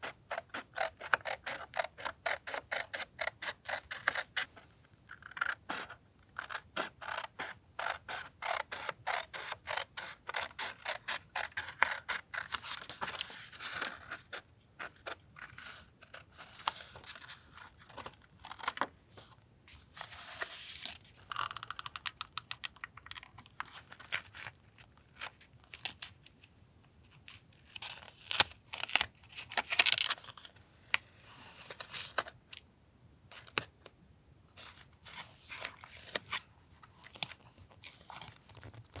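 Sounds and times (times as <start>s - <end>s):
quick clicks: 21.3s - 22.8s
paper and tape rustling: 37.0s - 39.0s.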